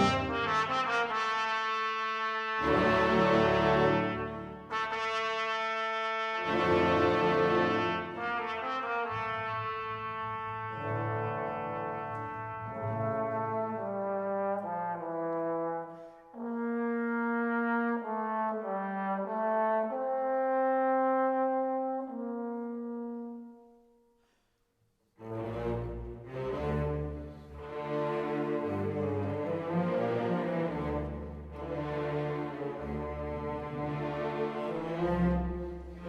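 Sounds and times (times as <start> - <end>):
slow brass chords: 0.0 - 23.8.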